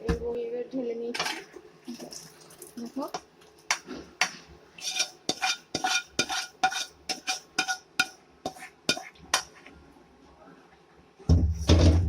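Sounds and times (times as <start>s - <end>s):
metal spoon clinking against pot: 4.8s - 9.5s.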